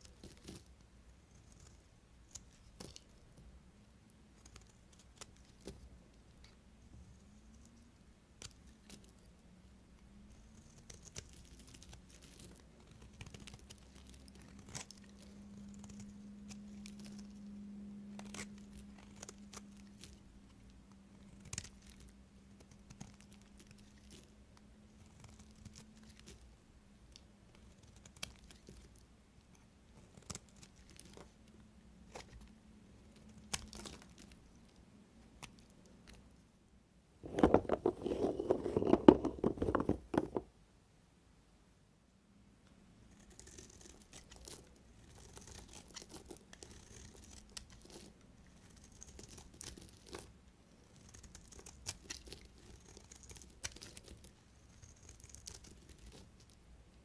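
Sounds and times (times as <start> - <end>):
faint low hum: 0.0 - 57.0
knife crunching through soap: 33.3 - 34.3, 43.4 - 50.3, 51.0 - 56.3.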